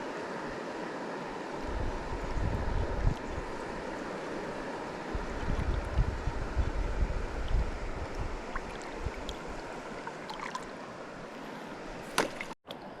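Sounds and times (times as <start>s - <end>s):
river water over rocks: 0.0s - 13.0s
wind buffeting microphone: 1.6s - 3.6s, 5.1s - 9.8s.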